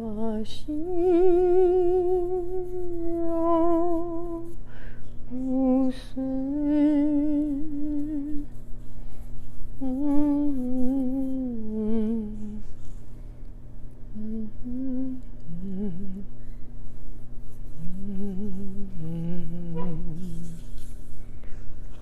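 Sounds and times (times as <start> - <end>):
woman humming a slow melody: 0.0 - 4.6, 5.3 - 8.6, 9.8 - 12.9, 14.1 - 16.6, 17.7 - 20.9
steady low hum: 0.0 - 22.0.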